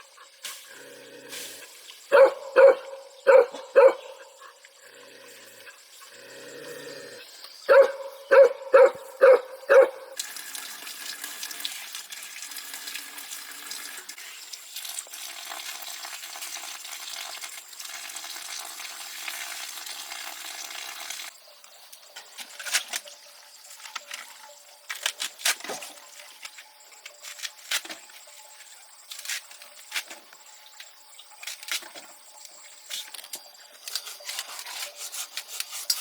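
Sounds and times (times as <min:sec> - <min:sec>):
dog barking: 0:02.1 - 0:04.4, 0:07.7 - 0:10.2
water running from tap: 0:10.2 - 0:21.4.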